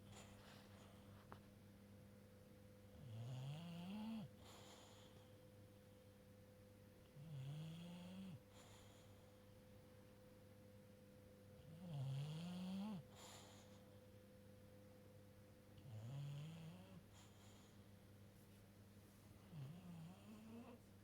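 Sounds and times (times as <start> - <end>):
dog snoring: 2.9 - 5.3, 7.0 - 9.4, 11.6 - 14.0, 15.8 - 17.8, 19.4 - 20.8.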